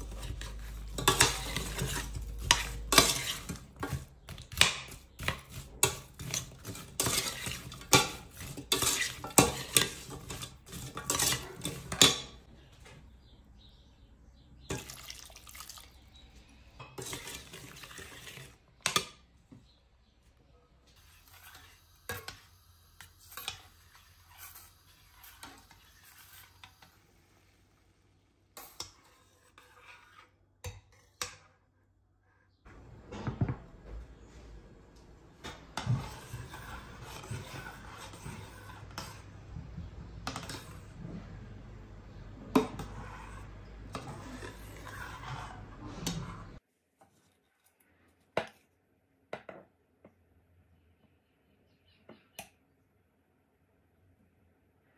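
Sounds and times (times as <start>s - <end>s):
dishes and utensils clinking: 0.0s - 12.5s.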